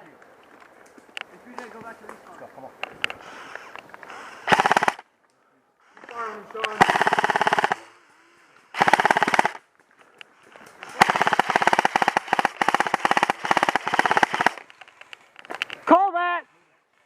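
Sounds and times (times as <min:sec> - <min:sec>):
airsoft gun firing bursts: 0:04.4 - 0:05.0, 0:06.7 - 0:07.9, 0:08.8 - 0:09.6, 0:10.8 - 0:14.6.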